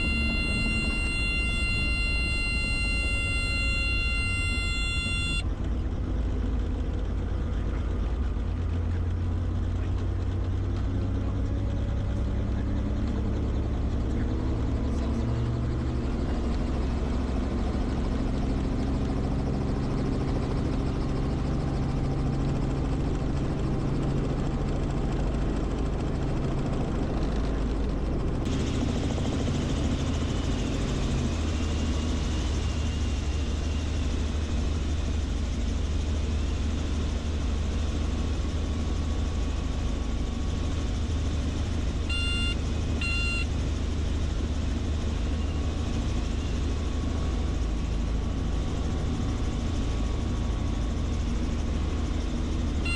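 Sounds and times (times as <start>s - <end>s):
faint wavering high tone: 0.0s - 5.4s, 42.1s - 43.4s
helicopter engine and rotor: 0.0s - 52.9s.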